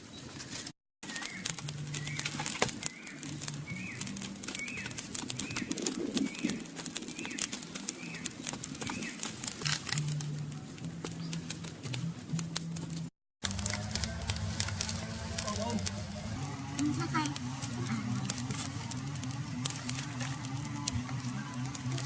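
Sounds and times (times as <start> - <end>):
bird calling: 1.0 - 11.8
sharp clicks: 1.0 - 22.0
low hum: 1.1 - 22.0.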